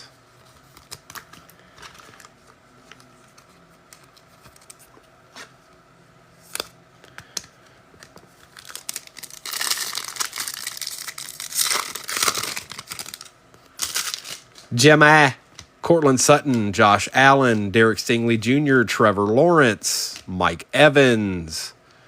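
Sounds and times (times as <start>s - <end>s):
foil wrapper crinkling and tearing: 8.4s - 14.7s.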